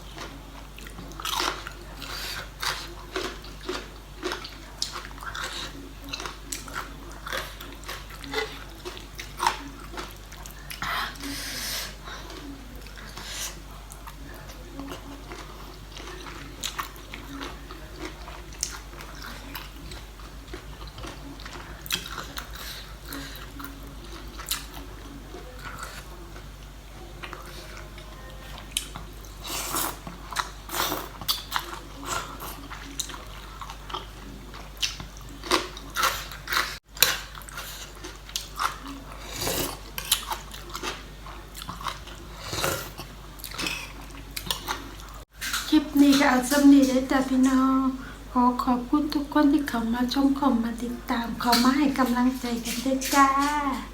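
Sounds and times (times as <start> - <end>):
person chewing crunchy salad: 0.0 - 48.3
low steady hum: 0.0 - 53.9.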